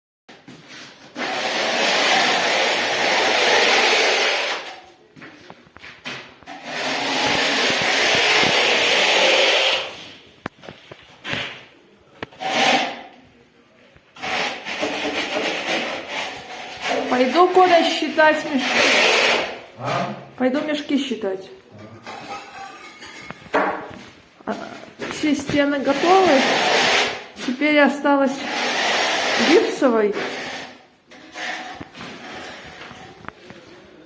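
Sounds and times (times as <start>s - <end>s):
hand tool scraping rough surface: 0.7s - 4.8s, 6.4s - 10.2s, 12.3s - 13.2s, 14.2s - 20.2s, 25.0s - 27.7s, 28.4s - 33.4s.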